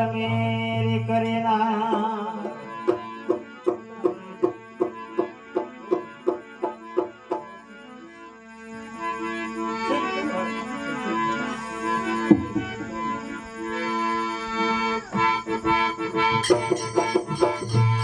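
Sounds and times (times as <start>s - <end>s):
steady drone: 8.1s - 18.0s
melody of held notes: 9.0s - 18.0s
even struck beats: 12.3s - 13.1s, 15.2s - 18.0s.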